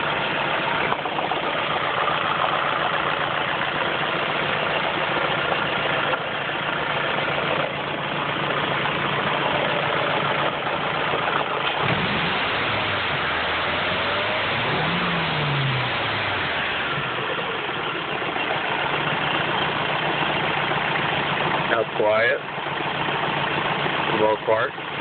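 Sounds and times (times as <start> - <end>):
car engine revving: 11.6 - 17.9.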